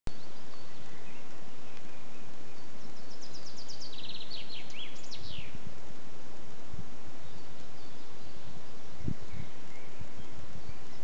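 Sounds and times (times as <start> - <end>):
faint high bird calls: 0.1 - 5.7
songbird singing: 0.1 - 11.0
steady outdoor hiss: 0.1 - 11.0.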